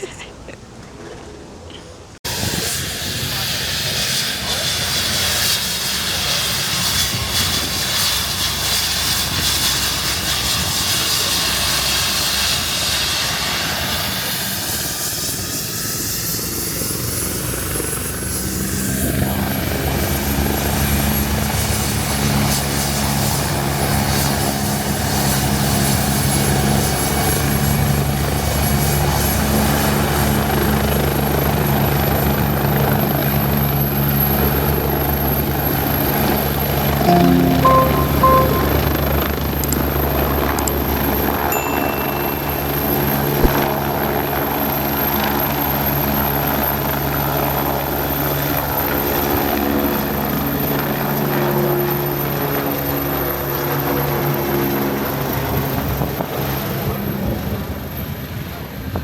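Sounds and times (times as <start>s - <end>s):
high whine: 37.1s - 39.4s.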